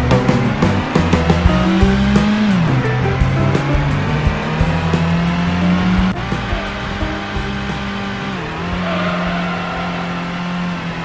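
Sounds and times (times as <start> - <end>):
upbeat background music: 0.0 - 10.6
cartoon engine drone: 5.7 - 11.0.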